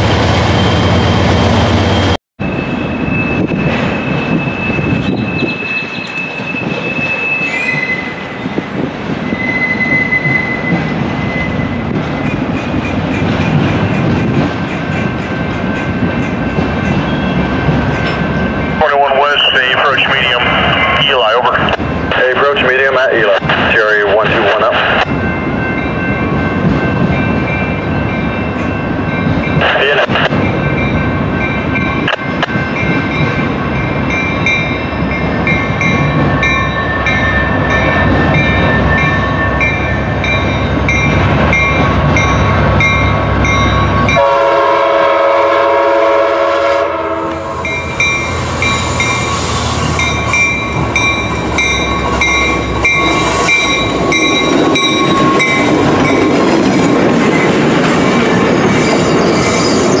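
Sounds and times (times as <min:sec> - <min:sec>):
train rumbling: 0:00.0 - 1:00.0
train horn blast: 0:44.1 - 0:47.8.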